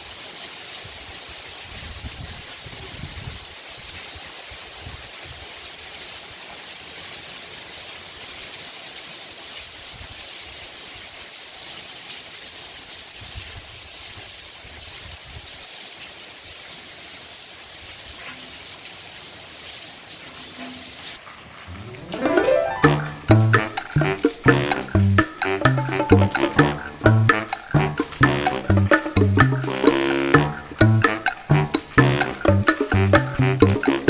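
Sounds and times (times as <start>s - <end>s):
heavy rain pouring: 17.5s - 34.0s.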